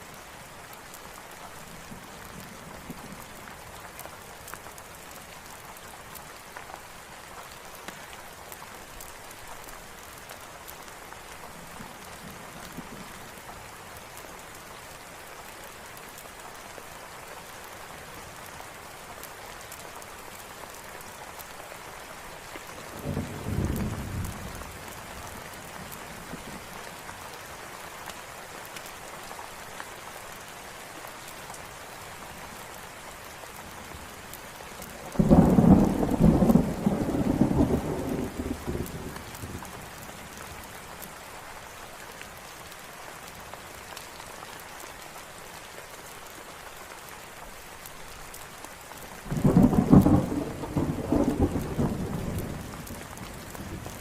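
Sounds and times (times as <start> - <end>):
steady rain falling: 0.0 - 54.0
thunder rumbling: 35.2 - 39.2, 49.3 - 54.0.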